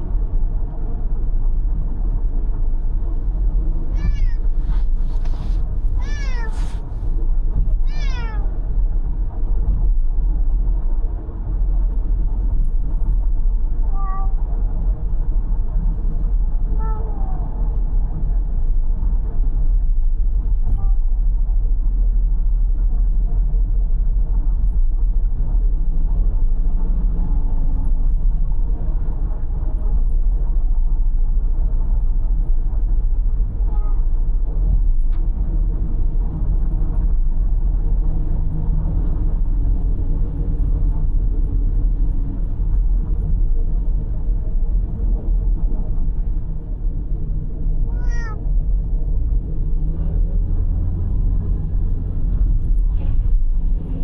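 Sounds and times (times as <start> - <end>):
car road and engine rumble: 0.0 - 54.0
cat meowing: 3.9 - 4.8, 6.0 - 7.0, 7.8 - 8.5, 13.9 - 14.4, 16.8 - 17.4, 33.7 - 34.0, 47.9 - 48.4.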